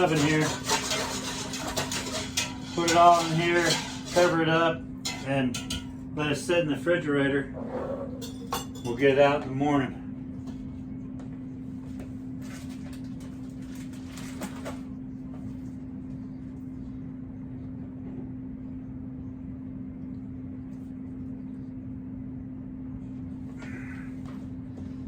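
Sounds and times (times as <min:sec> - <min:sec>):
rustling and light clattering: 0:00.0 - 0:04.4
steady low hum: 0:00.0 - 0:25.0.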